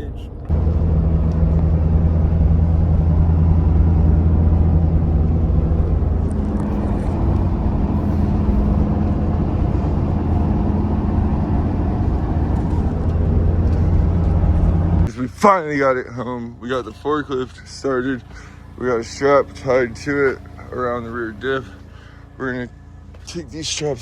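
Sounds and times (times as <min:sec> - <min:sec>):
engine humming steadily: 0:00.0 - 0:24.0.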